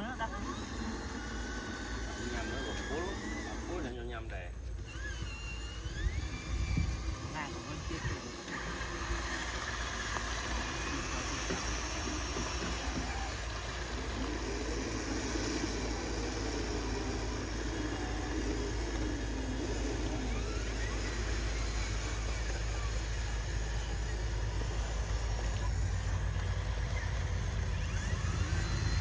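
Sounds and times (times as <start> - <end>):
model truck motors whining: 0.0 - 29.0.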